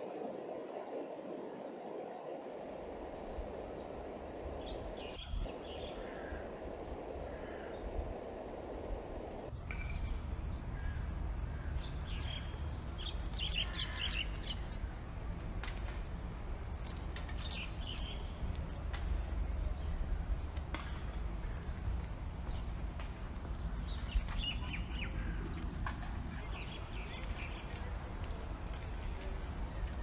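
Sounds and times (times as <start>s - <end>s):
small birds chirping: 16.8s - 30.0s.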